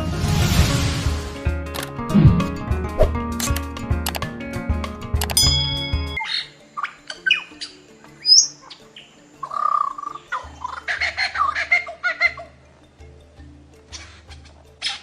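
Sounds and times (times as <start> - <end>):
soft background music: 0.0 - 15.0
low pulsing beat: 2.0 - 6.2
birds chirping and whistling: 5.6 - 12.6.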